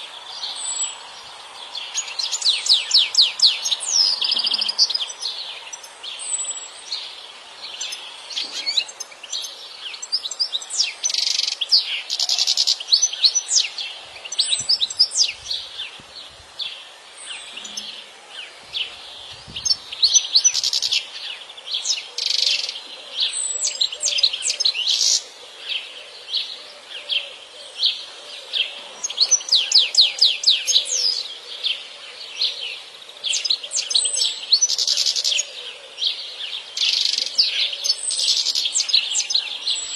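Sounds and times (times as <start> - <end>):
goldfinch twittering and trilling: 16.6 - 25.2.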